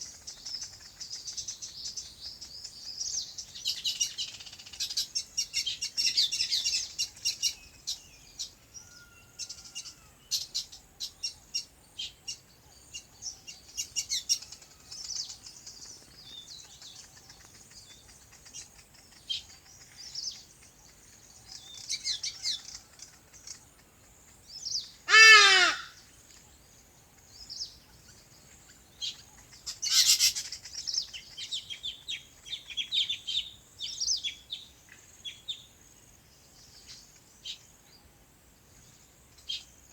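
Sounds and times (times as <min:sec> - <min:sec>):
small birds chirping and trilling: 0:00.0 - 0:39.9
louder lower bird call: 0:25.1 - 0:26.0.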